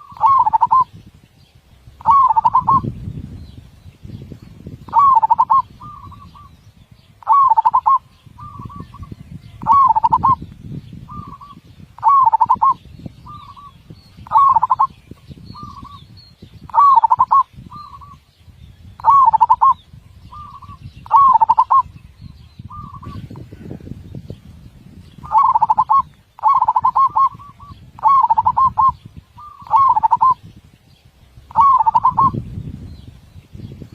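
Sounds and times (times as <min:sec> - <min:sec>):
dove cooing: 0:00.0 - 0:00.9, 0:02.0 - 0:02.9, 0:04.9 - 0:06.5, 0:07.2 - 0:10.4, 0:11.1 - 0:14.9, 0:16.7 - 0:18.2, 0:19.0 - 0:21.9, 0:25.2 - 0:30.4, 0:31.5 - 0:32.4.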